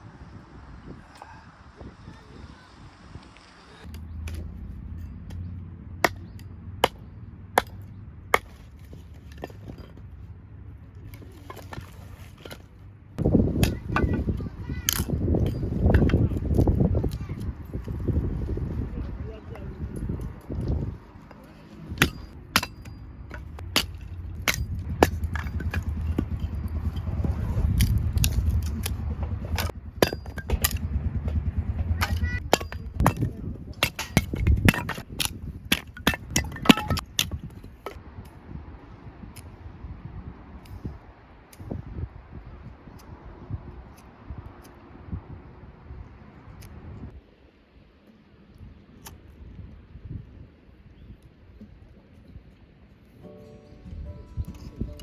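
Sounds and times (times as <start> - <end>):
low rumble: 0.0 - 8.4, 12.5 - 41.0.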